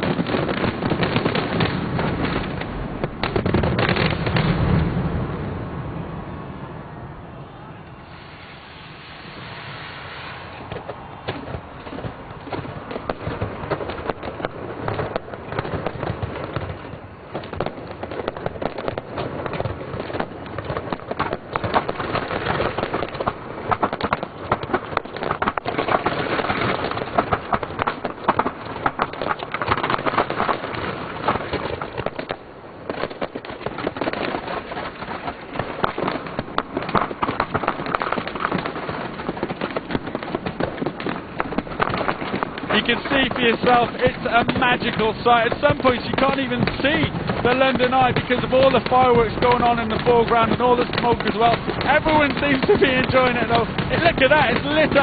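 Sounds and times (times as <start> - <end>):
fireworks bangs and crackling: 0.0 - 6.2, 7.9 - 55.0.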